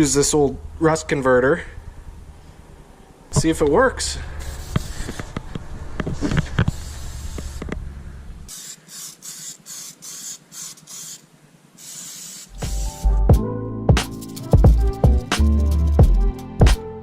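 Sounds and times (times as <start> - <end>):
aerosol can spraying: 4.4 - 5.4, 6.6 - 7.7, 8.5 - 13.1.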